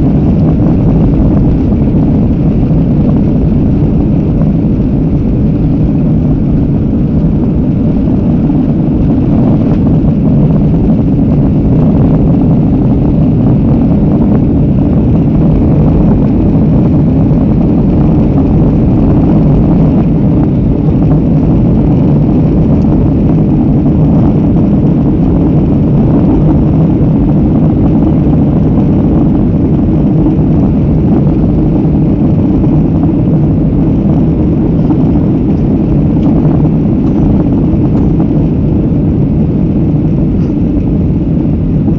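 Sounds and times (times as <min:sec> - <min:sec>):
aircraft engines rumbling: 0:00.0 - 0:41.9.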